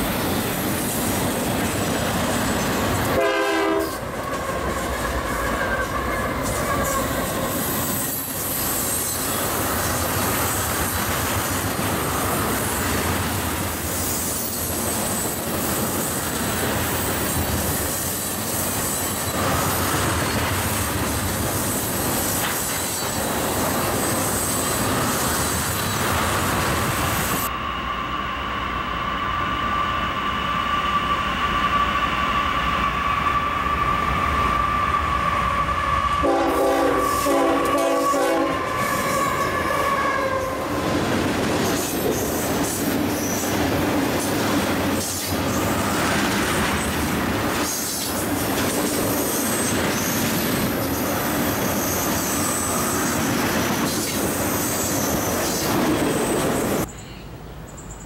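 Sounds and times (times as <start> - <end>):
freight train rumbling past: 0.0 - 58.0
high wheel squeal: 3.8 - 11.1, 27.0 - 36.3, 49.1 - 56.9.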